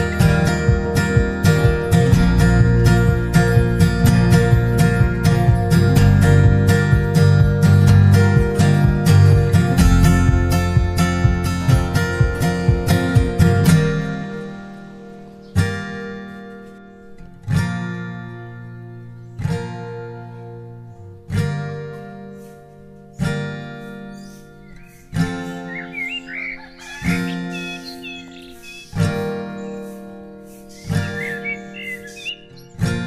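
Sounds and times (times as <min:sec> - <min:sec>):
acoustic guitar chords ringing: 0:00.0 - 0:33.0.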